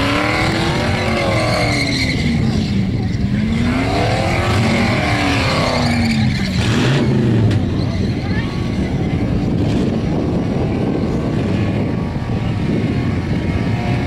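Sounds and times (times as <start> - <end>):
car engine revving high: 0.0 - 7.8.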